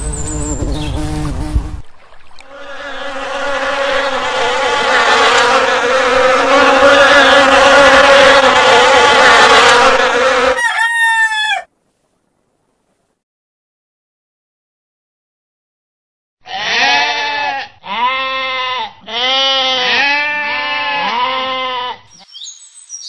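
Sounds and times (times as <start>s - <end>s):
honeybees buzzing: 0.0s - 1.8s, 2.5s - 10.6s.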